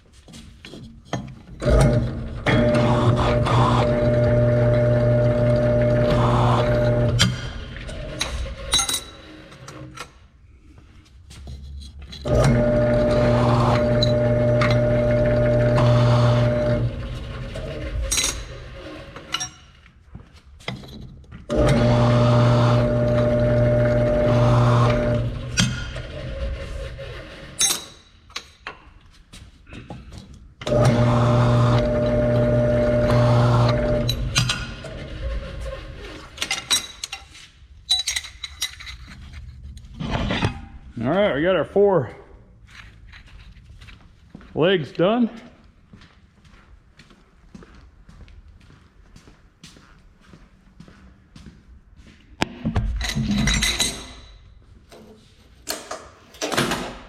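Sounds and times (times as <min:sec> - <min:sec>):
bench tool motor humming: 0:01.7 - 0:07.3, 0:12.3 - 0:17.8, 0:21.5 - 0:25.6, 0:30.6 - 0:35.2
metal parts clinking: 0:37.9 - 0:39.2.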